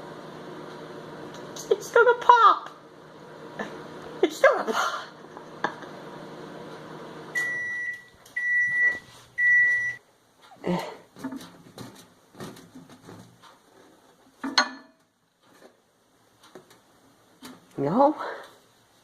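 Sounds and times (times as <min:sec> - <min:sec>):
microwave oven humming: 0:00.0 - 0:10.6
microwave beeps: 0:07.3 - 0:10.0.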